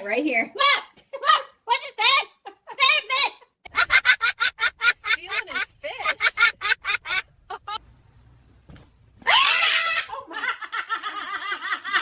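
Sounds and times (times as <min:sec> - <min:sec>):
cackling laughter: 0:03.7 - 0:07.8, 0:09.3 - 0:12.0
harsh shriek: 0:09.2 - 0:10.1.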